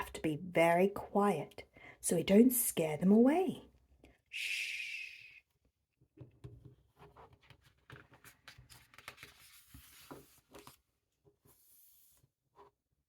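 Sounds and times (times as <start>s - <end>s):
book pages rustling and turning: 6.9s - 12.8s.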